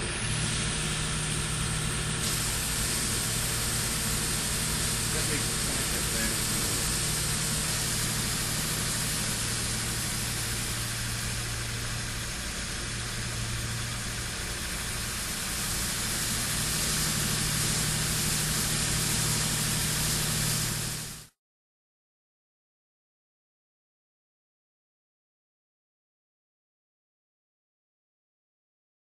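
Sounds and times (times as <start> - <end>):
low machine hum: 0.0 - 21.2
water vapor jet hissing: 0.0 - 21.3.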